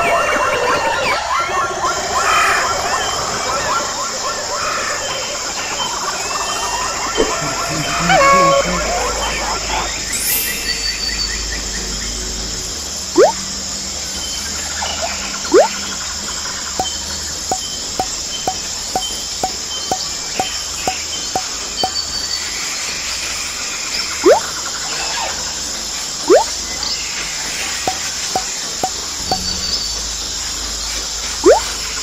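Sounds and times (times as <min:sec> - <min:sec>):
insects chirring: 0:04.6 - 0:22.7
short chirps: 0:13.2 - 0:13.4, 0:15.5 - 0:15.7, 0:26.3 - 0:26.5, 0:31.4 - 0:31.7.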